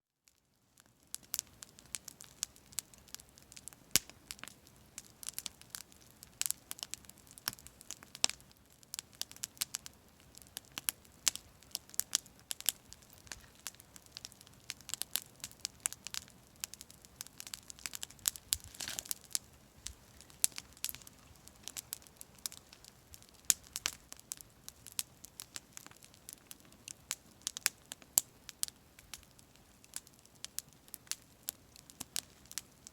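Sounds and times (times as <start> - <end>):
campfire crackling: 0.2 - 32.9
fire hissing flare: 17.8 - 24.0.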